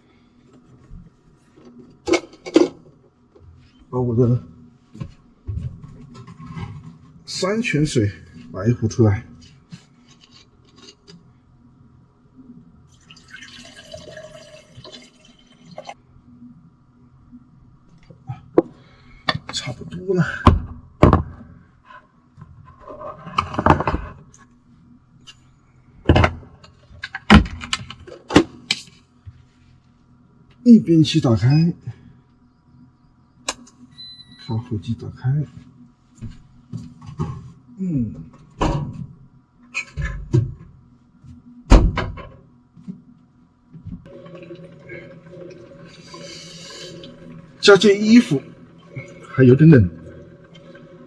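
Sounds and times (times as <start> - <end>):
coffee machine hiss: 44.1 - 48.4
coffee machine humming: 44.1 - 51.0.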